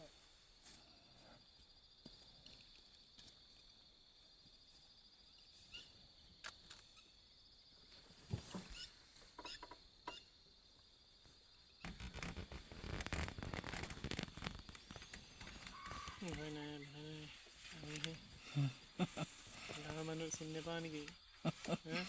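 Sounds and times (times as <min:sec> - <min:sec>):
insect chorus buzzing: 0:00.2 - 0:22.0
rustling: 0:11.3 - 0:21.8.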